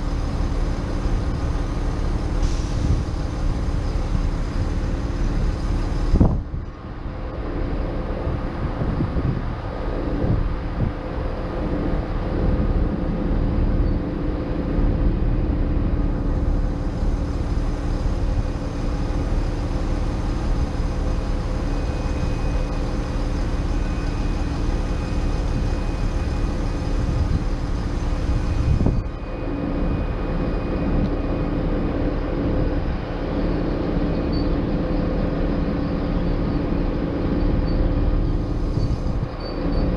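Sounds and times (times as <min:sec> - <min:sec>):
diesel train engine idling: 0:00.0 - 0:39.9
faint high whine: 0:11.6 - 0:39.9.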